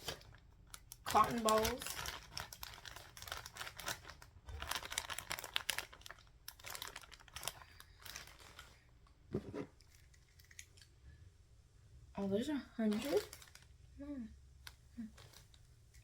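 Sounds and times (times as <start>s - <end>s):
plastic packaging crinkling: 0.0s - 8.9s, 12.8s - 13.8s.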